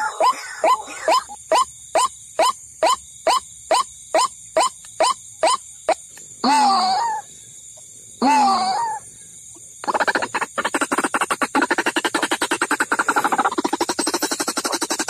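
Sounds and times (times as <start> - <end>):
waterhen calls: 9.8 - 15.0.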